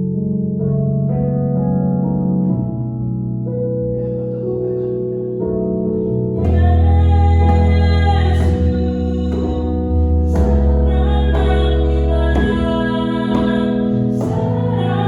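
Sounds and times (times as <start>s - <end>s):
piano accompaniment: 0.0s - 15.0s
deep bass note: 6.0s - 15.0s
person singing: 6.4s - 15.0s.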